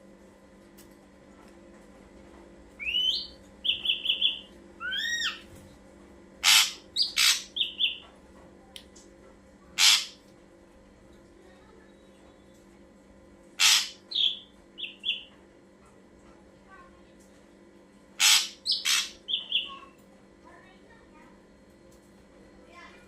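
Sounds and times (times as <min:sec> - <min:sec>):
bird whistled calls: 0:02.8 - 0:05.4, 0:06.4 - 0:08.0, 0:13.6 - 0:15.3, 0:18.2 - 0:19.7
bird harsh calls: 0:02.8 - 0:05.5, 0:06.4 - 0:08.1, 0:09.8 - 0:10.2, 0:13.6 - 0:15.3, 0:18.2 - 0:19.9.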